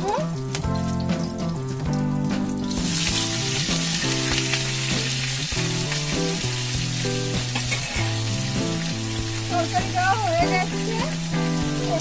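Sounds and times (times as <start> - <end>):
background music: 0.0 - 12.0
potatoes sizzling in hot oil: 0.0 - 12.0.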